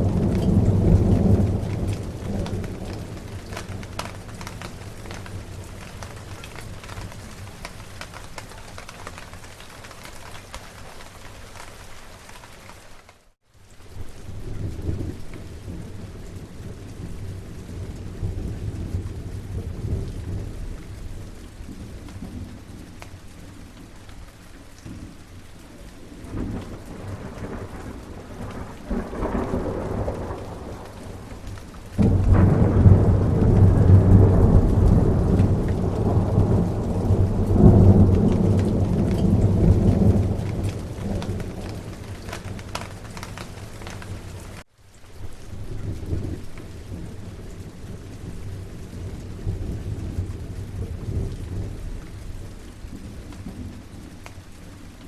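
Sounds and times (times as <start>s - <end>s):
loud thunderclap: 0.0s - 7.5s, 26.3s - 44.1s
rolling thunder: 0.0s - 8.4s, 26.1s - 44.6s
steady rain: 0.0s - 55.0s.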